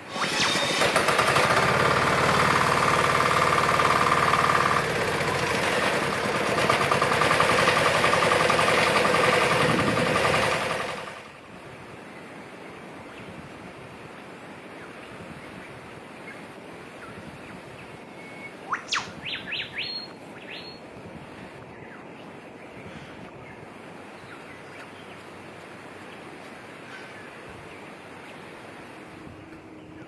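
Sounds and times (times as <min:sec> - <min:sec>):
excavator engine running: 0:00.0 - 0:11.5.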